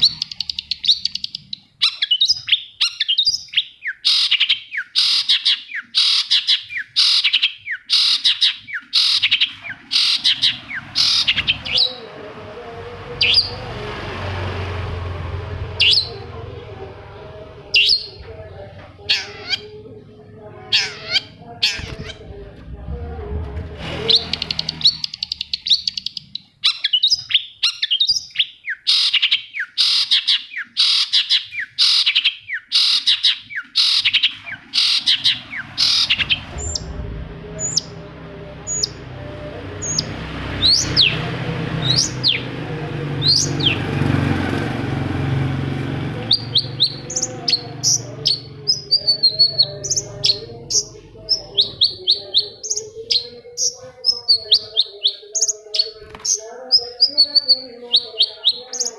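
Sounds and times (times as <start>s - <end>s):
low background rumble: 9.7s - 25.8s, 34.5s - 43.9s.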